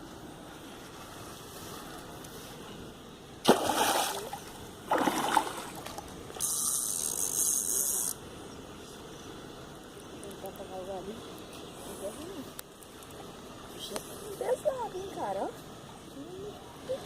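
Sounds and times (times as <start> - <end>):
fish splashing in water: 3.4 - 6.6.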